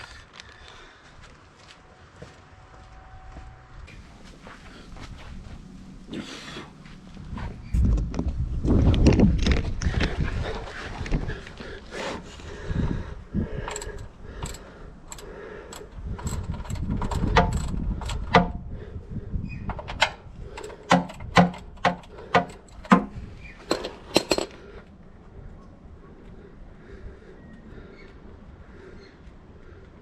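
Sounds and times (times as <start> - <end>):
metal tools clinking: 13.6 - 18.6, 19.7 - 24.6.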